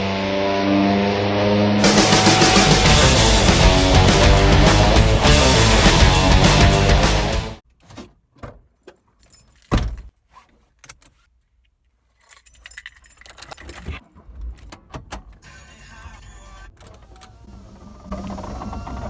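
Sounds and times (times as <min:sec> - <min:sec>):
loud music: 0:00.0 - 0:07.6.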